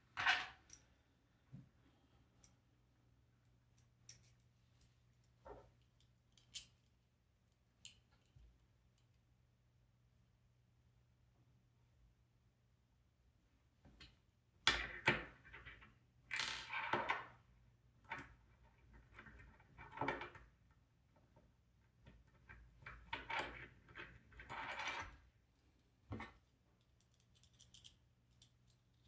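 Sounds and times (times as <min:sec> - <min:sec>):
clicks and rattles of small parts: 0:26.8 - 0:29.0.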